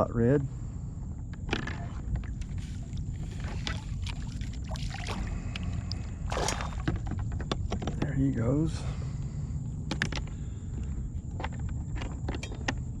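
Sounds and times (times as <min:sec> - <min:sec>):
low steady rumble: 0:00.0 - 0:13.0
small handling clicks and knocks: 0:09.9 - 0:12.8.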